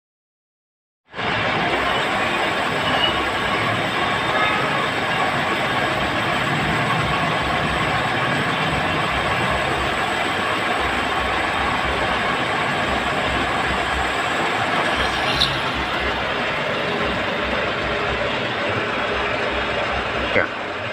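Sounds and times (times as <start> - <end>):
tractor engine running: 4.9 - 20.9.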